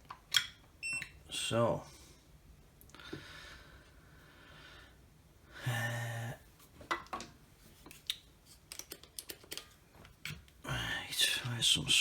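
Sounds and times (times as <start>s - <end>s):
small tools clicking and tapping: 8.0s - 10.5s.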